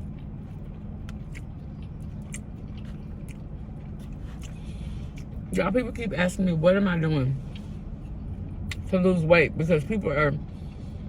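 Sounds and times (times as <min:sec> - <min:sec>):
chewing sandwich: 0:00.0 - 0:05.5
steady low hum: 0:00.0 - 0:11.0
wet mouth clicks: 0:01.0 - 0:03.5.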